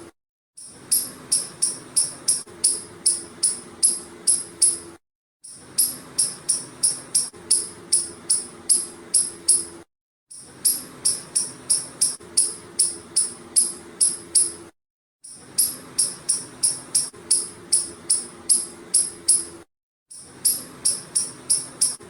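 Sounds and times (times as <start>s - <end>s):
squirrel chirping: 0.9s - 4.8s, 5.8s - 9.6s, 10.6s - 14.6s, 15.6s - 19.5s, 20.4s - 22.0s.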